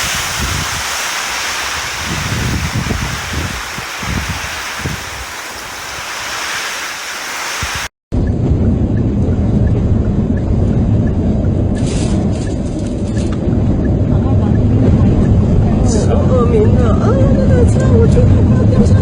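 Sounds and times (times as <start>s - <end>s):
driving rain and wind: 0.0s - 19.0s
wind buffeting microphone: 0.0s - 19.0s.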